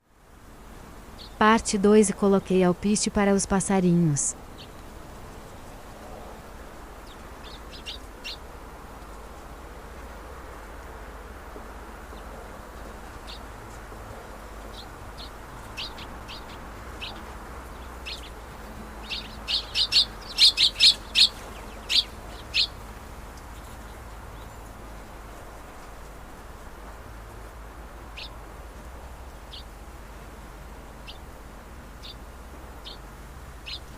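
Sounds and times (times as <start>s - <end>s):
small birds chirping: 1.1s - 2.6s, 3.5s - 9.4s, 12.1s - 25.9s, 28.1s - 29.8s, 30.8s - 33.9s.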